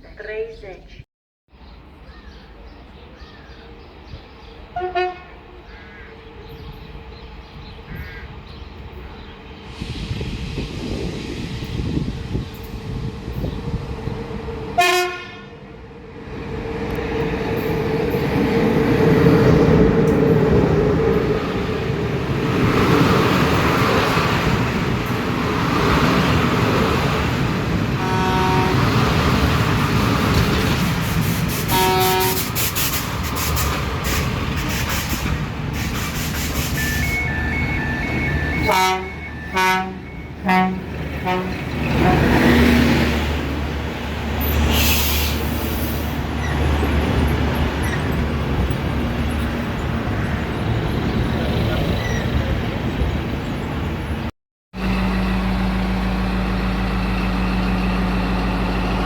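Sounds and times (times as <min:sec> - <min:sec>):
train running: 0:02.8 - 0:54.2, 0:54.8 - 0:59.0
locomotive horn blasts: 0:04.8 - 0:05.5, 0:14.8 - 0:15.6, 0:27.9 - 0:29.0, 0:31.7 - 0:32.5, 0:36.7 - 0:42.6.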